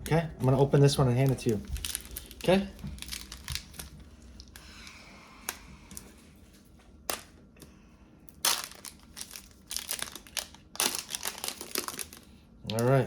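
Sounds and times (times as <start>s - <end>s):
wrapper crinkling and tearing: 0.4s - 4.6s, 8.3s - 13.0s.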